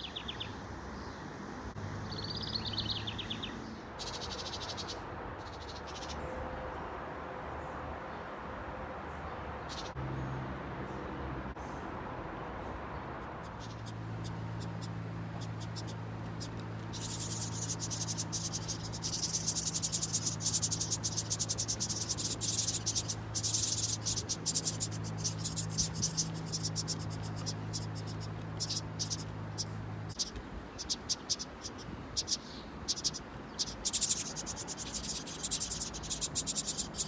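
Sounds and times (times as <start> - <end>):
insects chirping trill: 13.6 - 37.0.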